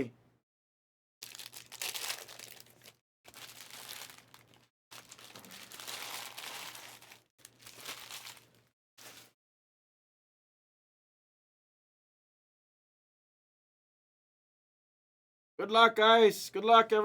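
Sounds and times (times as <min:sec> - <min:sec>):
plastic wrappers crinkling and tearing: 0:01.2 - 0:09.3.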